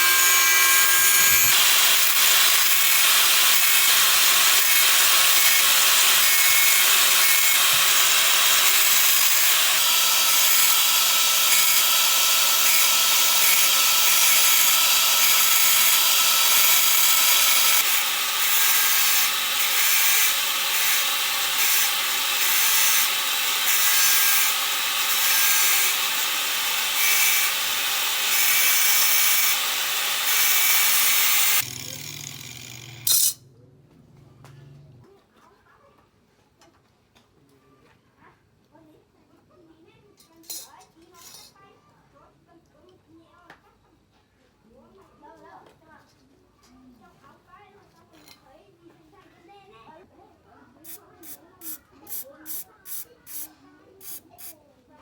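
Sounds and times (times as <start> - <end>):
power tool sanding hiss: 0.0 - 33.0.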